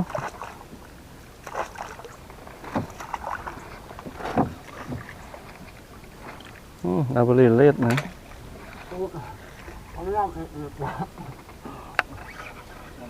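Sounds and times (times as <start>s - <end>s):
faint steady hiss: 0.0s - 13.0s
water splashes: 0.0s - 13.0s
soft knocks: 2.6s - 6.6s.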